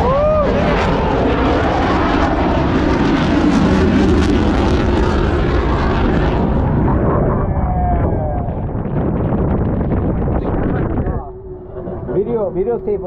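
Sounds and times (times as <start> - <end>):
jet aircraft passing overhead: 0.0 - 13.0.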